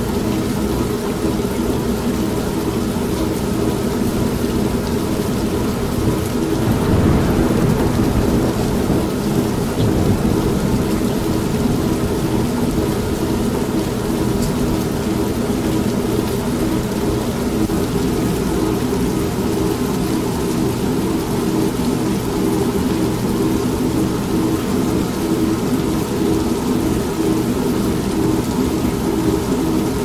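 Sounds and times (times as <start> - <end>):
steady rain: 0.0 - 30.0
washing machine humming: 4.4 - 16.0
thunder rolling: 5.3 - 14.8.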